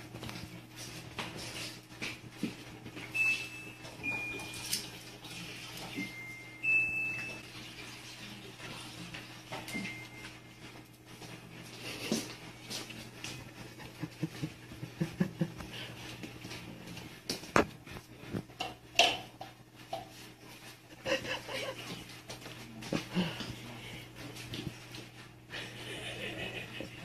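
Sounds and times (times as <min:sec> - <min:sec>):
bowls clicking and knocking: 0:18.6 - 0:20.2.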